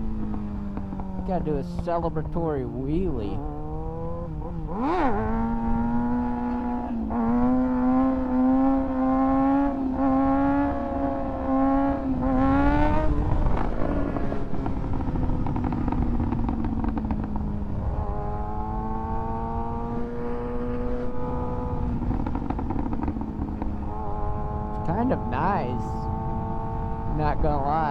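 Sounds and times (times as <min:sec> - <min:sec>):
motorcycle engine shifting gears: 0:00.0 - 0:27.9.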